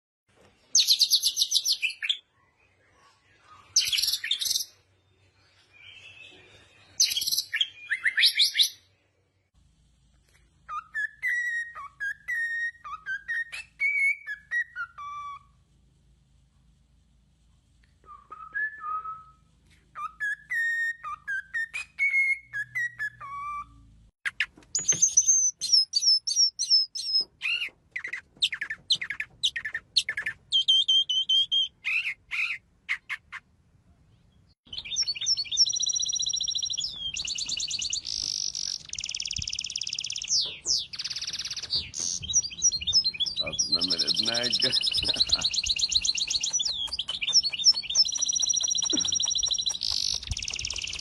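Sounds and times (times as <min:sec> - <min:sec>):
bird sharp chirps: 0:00.7 - 0:04.8, 0:20.0 - 0:33.5, 0:34.2 - 0:51.0
birds high twittering: 0:00.7 - 0:09.0, 0:34.2 - 0:51.0
bird whistled notes: 0:34.7 - 0:51.0.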